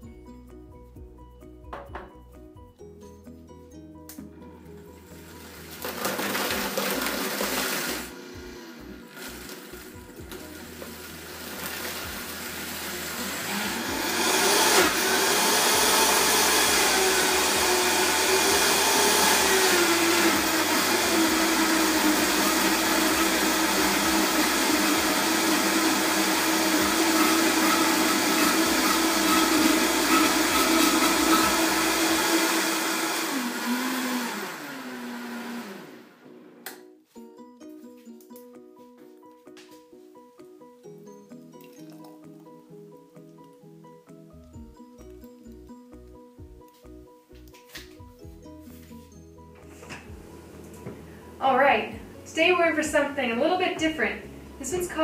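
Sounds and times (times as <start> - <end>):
blender motor whirring: 5.2 - 36.6.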